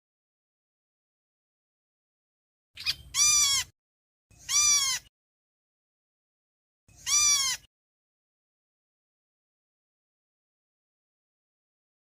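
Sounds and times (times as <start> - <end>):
loud nasal bird calls: 2.8 - 3.7, 4.3 - 5.1, 6.9 - 7.7.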